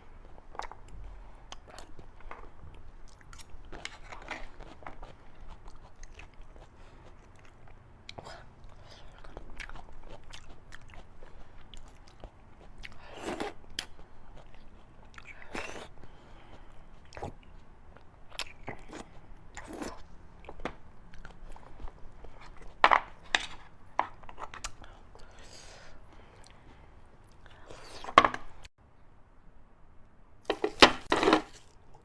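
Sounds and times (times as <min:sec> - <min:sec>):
chewing and biting meat: 0:03.0 - 0:16.0.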